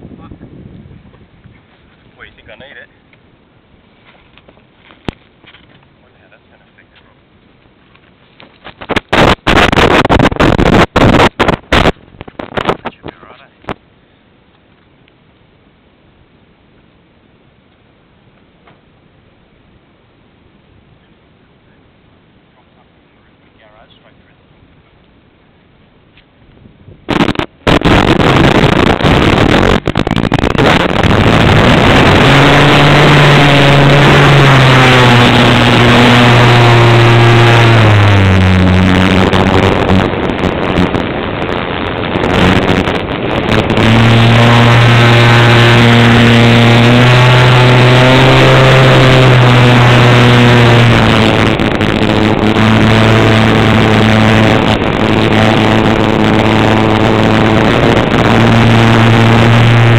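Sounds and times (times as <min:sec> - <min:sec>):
light aircraft engine and propeller: 0:01.1 - 0:10.4, 0:20.9 - 0:26.4, 0:27.1 - 0:41.0, 0:43.5 - 0:59.9.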